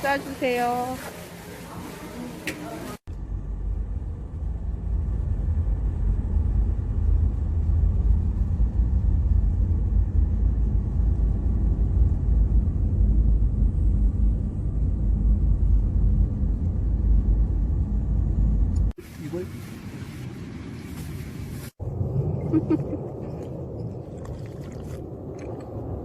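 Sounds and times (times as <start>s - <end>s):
deep low rumble: 3.0s - 19.0s, 19.6s - 26.0s.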